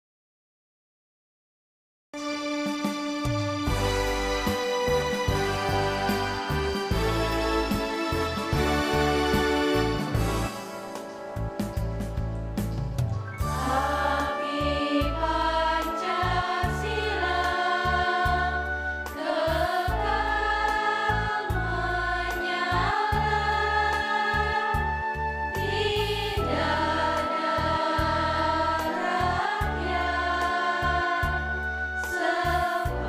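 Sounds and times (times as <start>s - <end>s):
keyboard accompaniment: 2.2s - 33.0s
choir singing: 3.7s - 10.6s, 13.5s - 33.0s.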